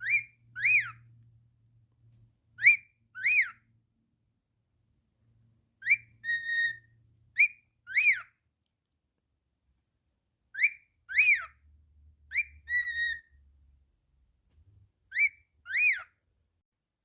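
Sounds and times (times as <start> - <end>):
cockatiel whistling: 0.0 - 1.1, 2.6 - 3.7, 5.8 - 8.4, 10.5 - 11.6, 12.3 - 13.4, 15.1 - 16.2.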